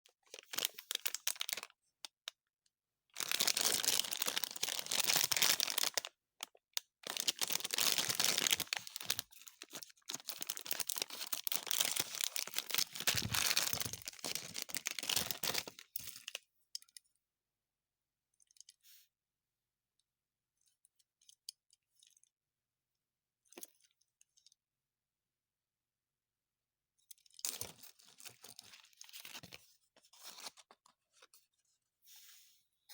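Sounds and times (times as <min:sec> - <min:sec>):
plastic packaging tearing and crinkling: 0:00.4 - 0:01.7, 0:03.2 - 0:06.1, 0:07.0 - 0:16.4.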